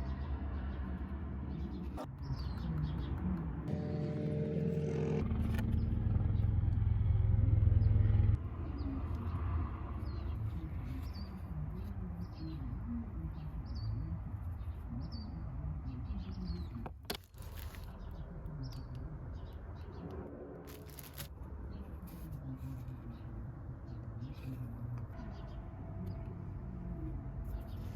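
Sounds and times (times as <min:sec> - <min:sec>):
low rumble: 0:03.6 - 0:08.5.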